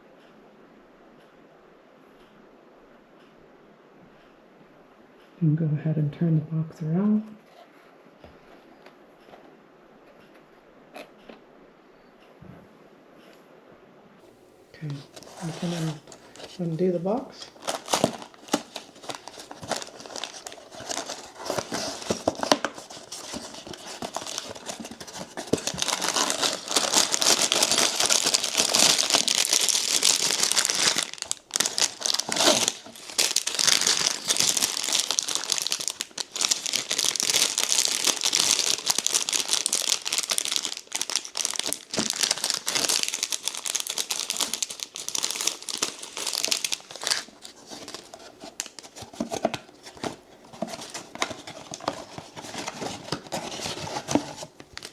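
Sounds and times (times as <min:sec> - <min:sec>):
plastic bags crinkling: 0:14.7 - 0:54.9
cardboard box rustles and clicks: 0:14.9 - 0:16.7, 0:17.4 - 0:54.9.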